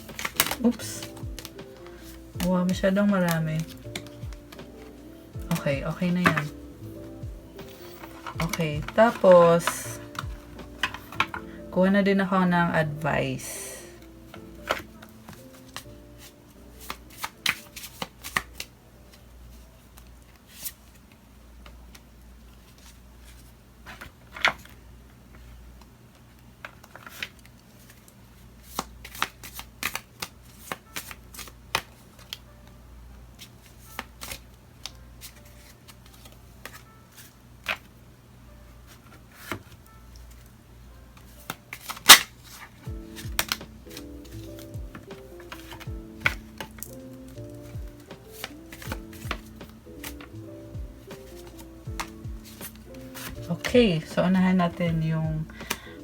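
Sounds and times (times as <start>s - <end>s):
cards being shuffled: 0.0s - 11.5s, 14.0s - 18.7s, 26.6s - 32.4s, 33.4s - 38.0s, 38.8s - 40.5s, 41.2s - 56.0s
soft background music: 0.0s - 56.0s.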